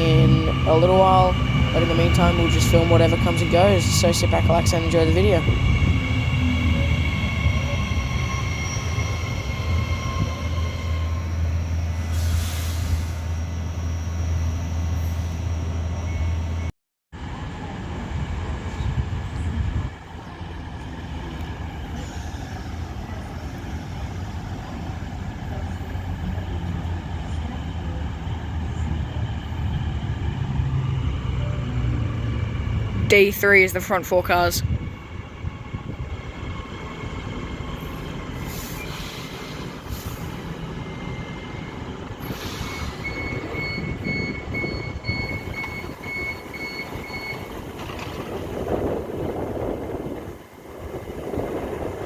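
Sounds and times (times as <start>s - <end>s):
train humming and whining: 0.0s - 52.0s
train rumble: 0.0s - 52.0s
train hiss: 11.3s - 13.4s, 37.8s - 40.7s, 42.2s - 43.2s.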